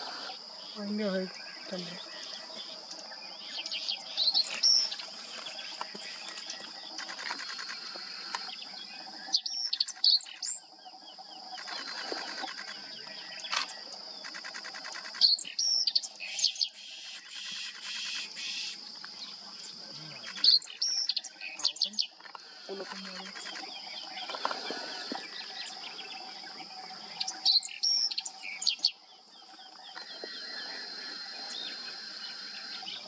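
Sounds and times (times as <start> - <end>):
high-pitched insect drone: 3.6 - 16.2, 30.0 - 33.0.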